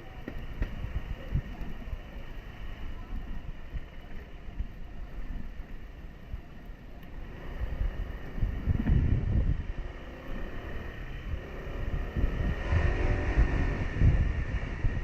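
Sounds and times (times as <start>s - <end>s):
wind buffeting microphone: 0.0s - 15.0s
motorcycle engine: 5.3s - 15.0s.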